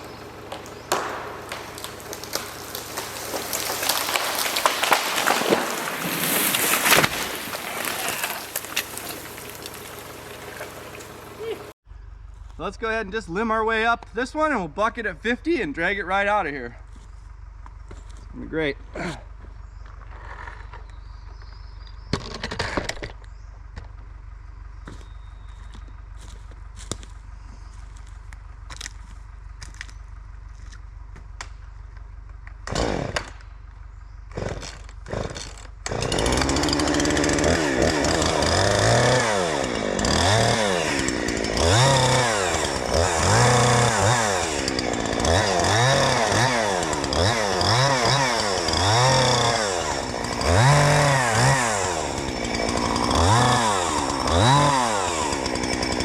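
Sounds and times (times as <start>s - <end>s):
chainsaw idling: 0.0s - 11.8s, 32.7s - 56.0s
chainsaw revving: 0.0s - 11.8s, 32.6s - 33.4s, 34.3s - 56.0s.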